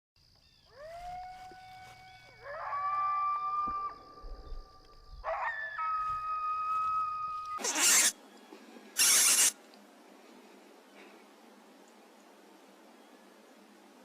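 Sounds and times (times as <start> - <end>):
coyotes howling: 0.6 - 8.1.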